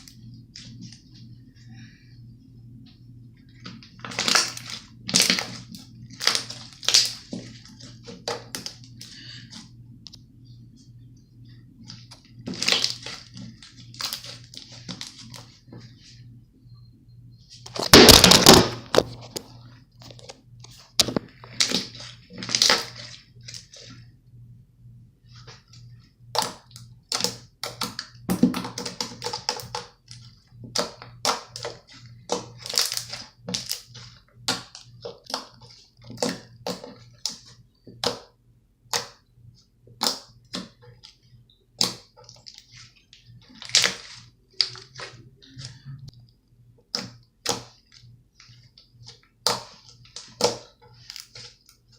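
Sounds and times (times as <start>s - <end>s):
slime squishing with pops and clicks: 4.0s - 7.4s, 26.3s - 39.3s, 39.9s - 42.8s, 43.4s - 51.9s.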